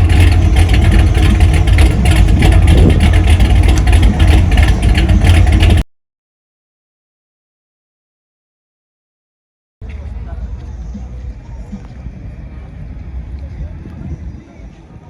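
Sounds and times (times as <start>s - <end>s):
car engine running: 0.0s - 5.8s, 9.8s - 15.0s.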